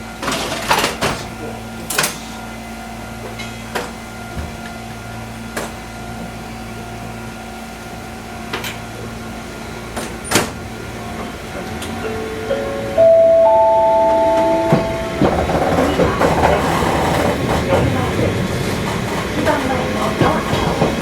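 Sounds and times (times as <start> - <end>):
electrical hum with tones: 11.8 - 17.5.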